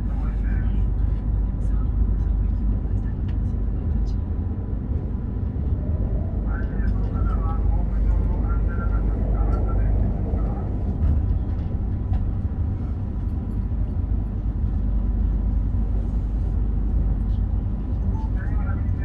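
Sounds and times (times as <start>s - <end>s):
train running low rumble: 0.0s - 19.0s.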